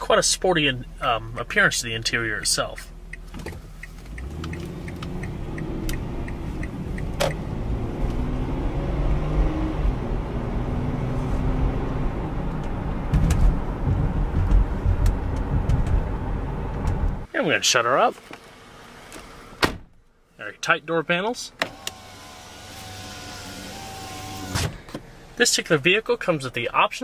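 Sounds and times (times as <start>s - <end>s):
road noise: 0.0s - 27.0s
light ticking: 2.6s - 7.4s
car engine accelerating: 2.9s - 17.3s.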